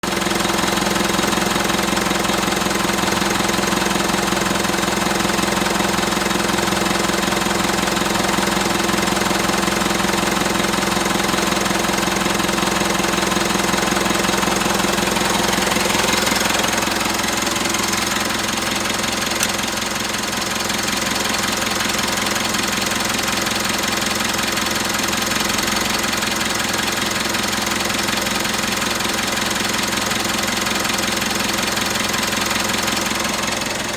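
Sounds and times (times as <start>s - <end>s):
car engine idling: 0.0s - 33.9s
click: 19.3s - 19.7s.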